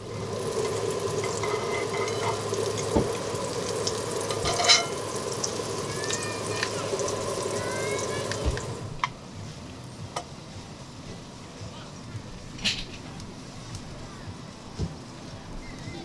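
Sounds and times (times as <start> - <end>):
food sizzling in a pan: 0.0 - 9.2.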